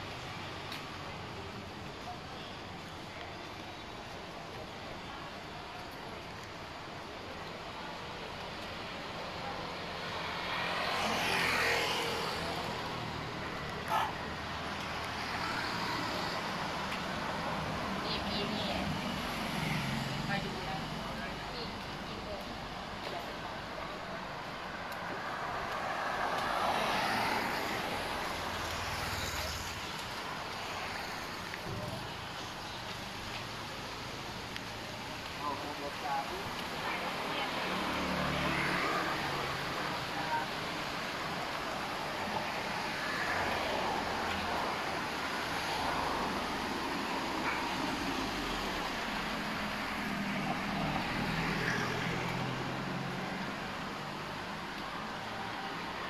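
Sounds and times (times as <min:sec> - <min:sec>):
street traffic hiss: 0:00.0 - 0:56.0
vehicle passing by: 0:10.2 - 0:14.1, 0:25.2 - 0:29.8, 0:35.4 - 0:54.1.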